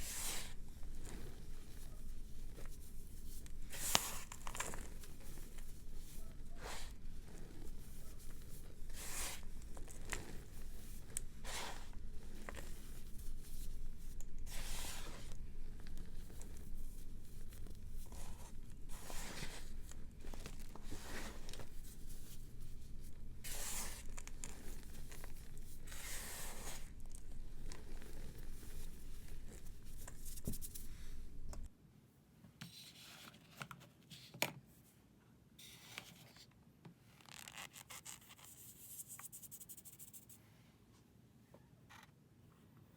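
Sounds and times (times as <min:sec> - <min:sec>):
background hum: 0:00.0 - 0:31.7.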